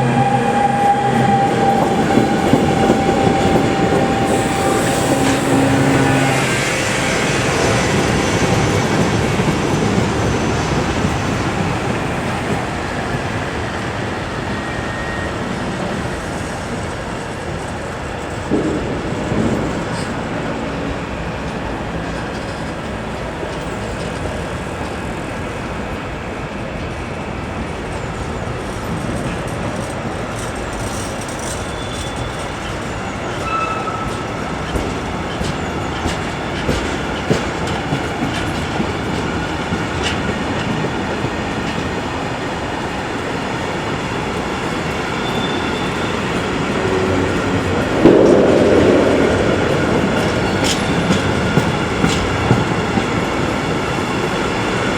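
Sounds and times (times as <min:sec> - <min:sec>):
train wheels rumbling on rails: 0:00.0 - 0:54.9
wheel squeals: 0:29.2 - 0:35.8, 0:44.6 - 0:47.3.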